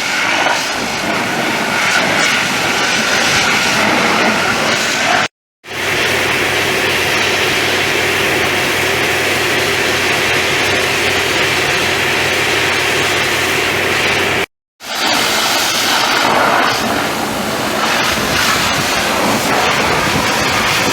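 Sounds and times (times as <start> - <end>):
pressure washer water jet hiss: 0.0 - 20.9
motor humming: 5.7 - 20.9.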